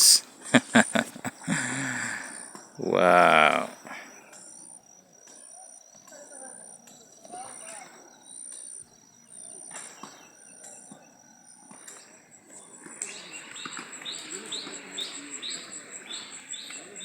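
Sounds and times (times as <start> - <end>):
steady hiss: 0.0 - 4.4.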